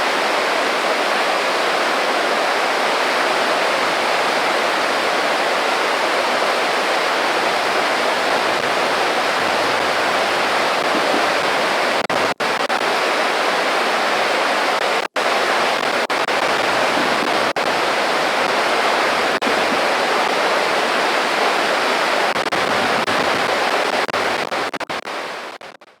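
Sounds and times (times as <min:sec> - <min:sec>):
creek babbling: 0:02.7 - 0:12.1.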